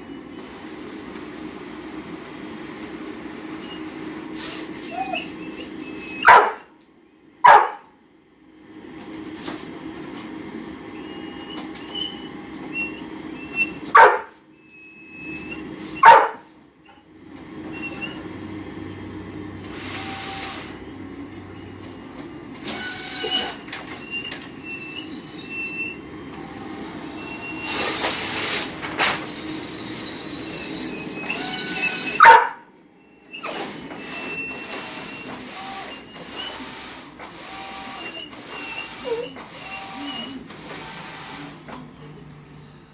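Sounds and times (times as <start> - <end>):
dog barking: 6.2 - 6.7, 7.4 - 7.9, 13.9 - 14.4, 16.0 - 16.5, 32.2 - 32.7
plotter mechanism running: 8.8 - 32.3, 33.0 - 42.9.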